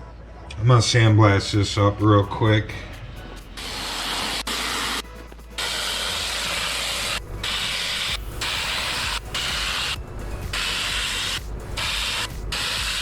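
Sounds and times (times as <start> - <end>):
sandblaster hissing: 3.5 - 13.0.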